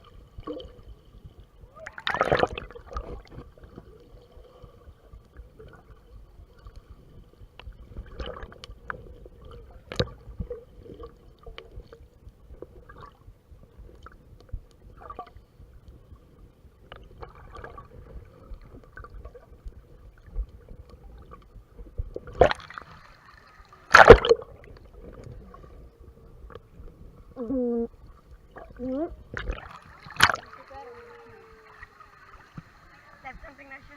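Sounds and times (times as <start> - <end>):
muffled water sloshing: 0.0 - 33.9
knocks and splashes: 1.8 - 3.5, 22.1 - 23.0, 23.9 - 24.7, 28.5 - 31.4.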